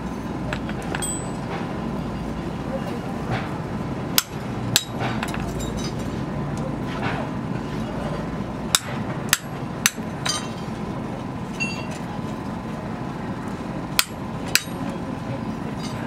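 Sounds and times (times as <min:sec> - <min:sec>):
steady background noise: 0:00.0 - 0:16.0
hammer striking metal: 0:01.0 - 0:01.4, 0:04.2 - 0:05.9, 0:08.7 - 0:10.6, 0:14.0 - 0:14.8
metallic ring: 0:01.0 - 0:01.5, 0:11.6 - 0:12.0.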